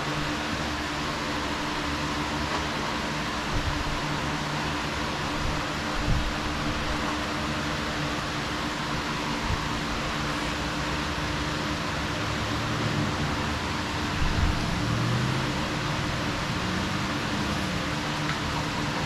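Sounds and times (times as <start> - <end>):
mechanical hiss with low hum: 0.0 - 19.0.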